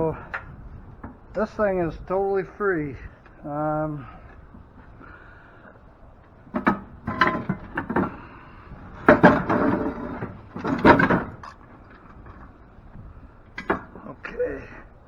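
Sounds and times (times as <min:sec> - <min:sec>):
heavy metal parts clanking: 0:06.4 - 0:14.9.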